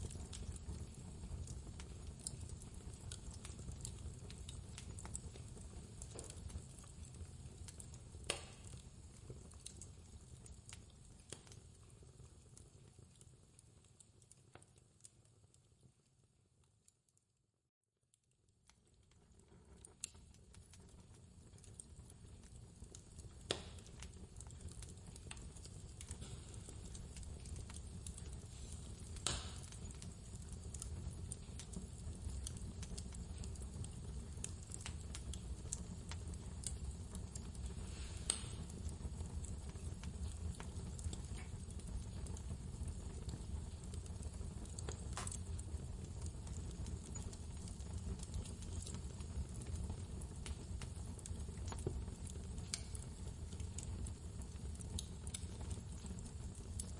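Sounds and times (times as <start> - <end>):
sharp fire pops: 0.0 - 7.0, 7.7 - 11.6, 22.8 - 49.1
wood fire crackling: 0.0 - 17.2, 18.1 - 56.9.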